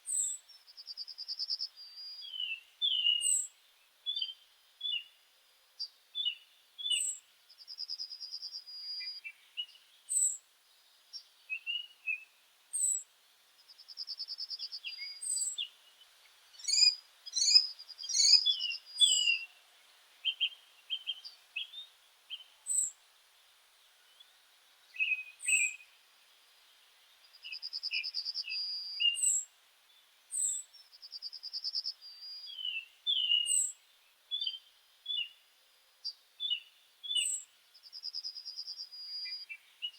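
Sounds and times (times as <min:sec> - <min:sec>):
short bird chirps: 0:16.6 - 0:19.5.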